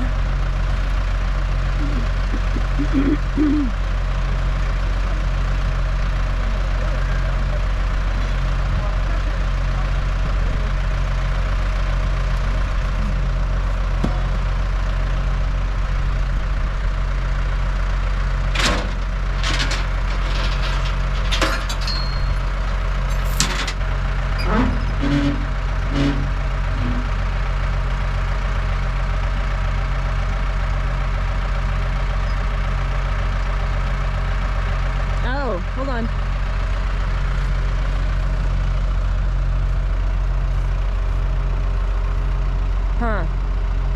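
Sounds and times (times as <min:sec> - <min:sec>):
loader engine idling: 0:00.0 - 0:43.9
metallic knocks and clanks: 0:18.6 - 0:22.4
short squeaks: 0:20.1 - 0:22.4, 0:24.4 - 0:27.1.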